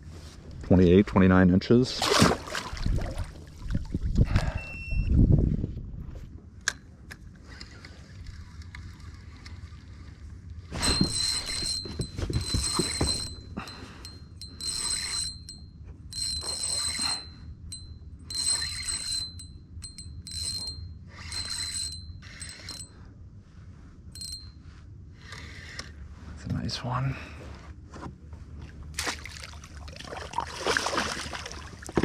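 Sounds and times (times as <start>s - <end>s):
fishing reel whirring: 7.4s - 23.0s, 25.2s - 26.0s.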